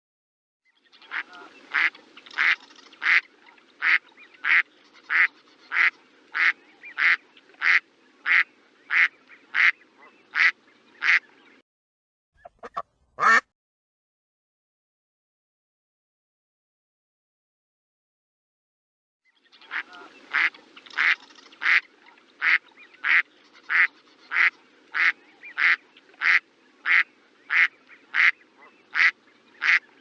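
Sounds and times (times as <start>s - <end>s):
duck quacking: 1.1s - 11.2s, 12.4s - 13.5s, 19.7s - 29.8s.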